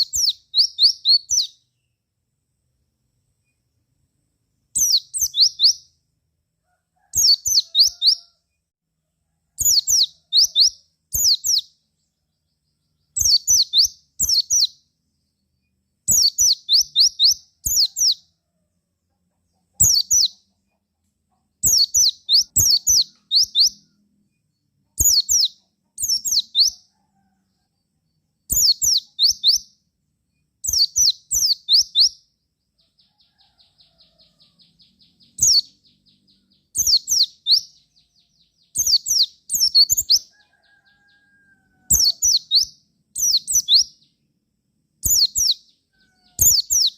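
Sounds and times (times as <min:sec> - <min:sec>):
bird singing descending notes: 0:04.8 - 0:05.9.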